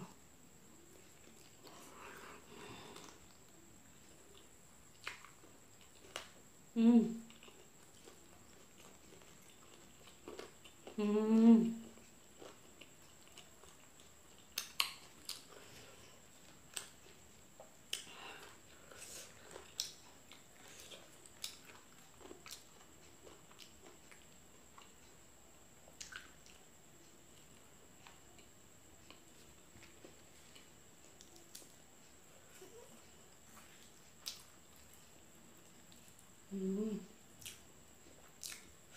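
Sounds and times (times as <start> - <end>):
wet mouth smacks and chewing: 4.4 - 6.3, 12.4 - 15.5, 26.0 - 26.6, 33.6 - 35.0, 37.4 - 37.6, 38.2 - 38.7
person humming: 6.7 - 7.3, 10.9 - 11.9, 36.5 - 37.1.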